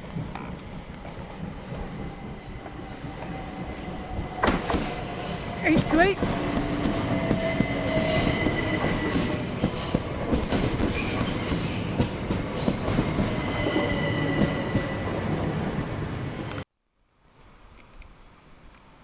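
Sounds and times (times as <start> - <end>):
train rumble: 0.0 - 16.6
wheels clicking over rail joints: 0.0 - 16.6
high-pitched wheel squeal: 6.6 - 15.1.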